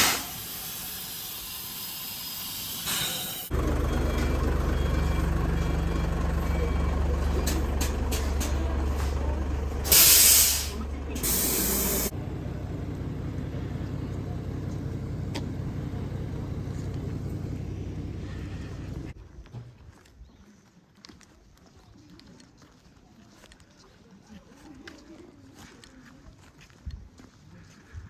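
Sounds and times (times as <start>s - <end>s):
hissing air release: 0.0s - 3.5s, 9.8s - 12.2s
train engine hum: 0.0s - 19.2s.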